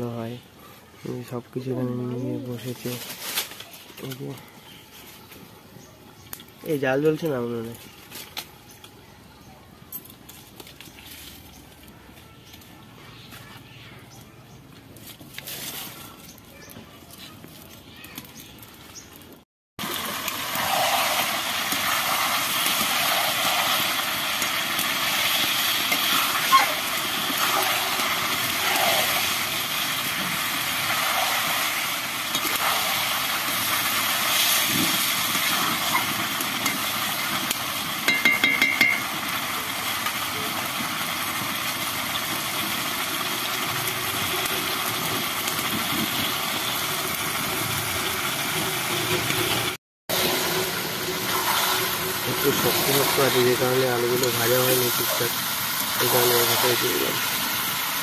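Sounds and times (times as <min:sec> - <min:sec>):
chicken sizzling in hot oil: 0:19.8 - 0:58.0.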